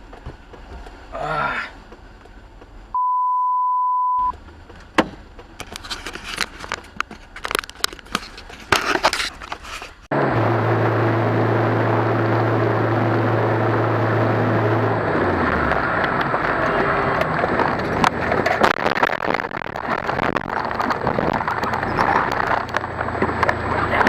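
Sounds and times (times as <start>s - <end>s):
vehicle running with road noise: 0.0s - 3.1s, 4.0s - 24.0s
faint clicks and rattles: 4.3s - 10.0s, 16.1s - 24.0s.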